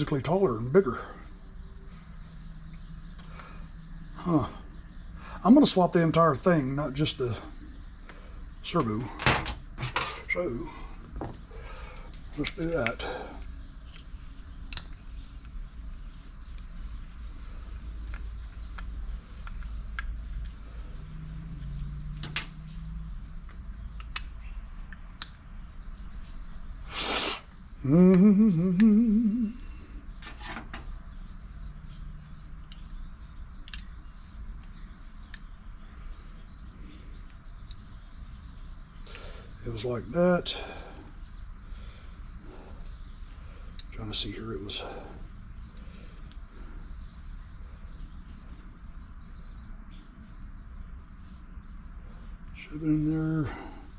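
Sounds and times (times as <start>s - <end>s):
clicks and taps of parts: 18.0s - 20.6s, 23.4s - 25.6s, 32.6s - 33.0s, 33.6s - 34.0s.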